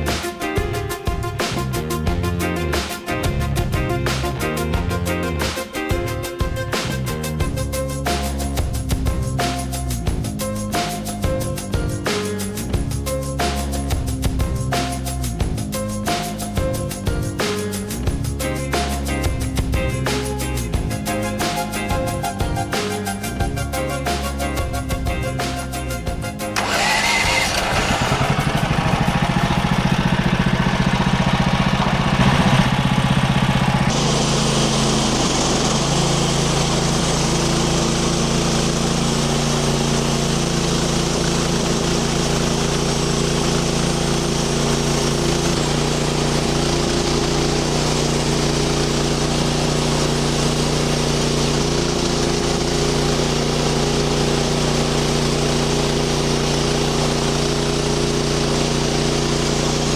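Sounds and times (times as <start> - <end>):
engine running under load: 26.6 - 59.9.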